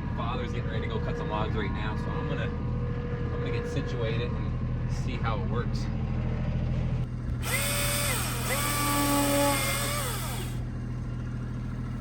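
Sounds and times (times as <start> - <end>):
tractor engine idling: 0.0 - 12.0
battery chainsaw motor whining: 7.4 - 10.7.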